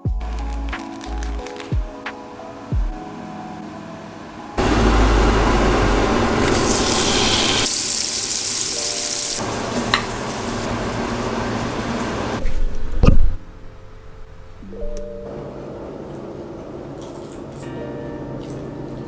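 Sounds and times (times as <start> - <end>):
tap water running into a sink: 5.6 - 12.3.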